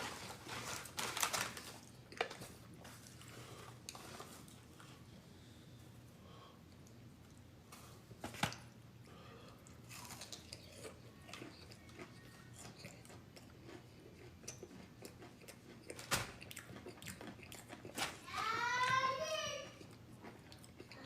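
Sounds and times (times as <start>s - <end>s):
person chewing food: 1.6s - 7.6s, 9.0s - 18.0s, 19.8s - 21.0s.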